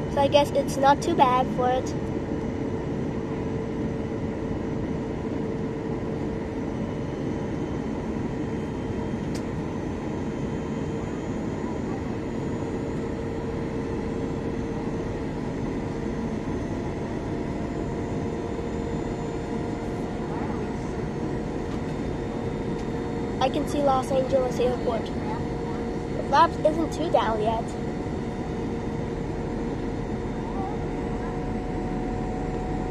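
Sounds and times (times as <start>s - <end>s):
airliner cabin engine rumble: 0.0s - 32.9s
constant hum tone: 0.0s - 32.9s.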